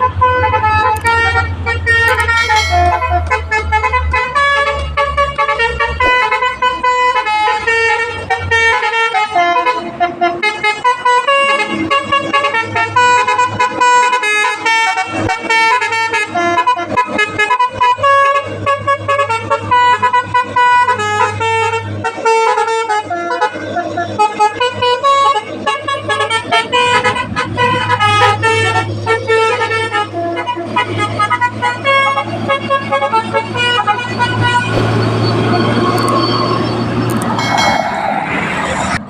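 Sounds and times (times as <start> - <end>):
low engine drone: 0.0 - 6.8, 24.0 - 39.0
truck musical horn playing tune: 0.0 - 38.0.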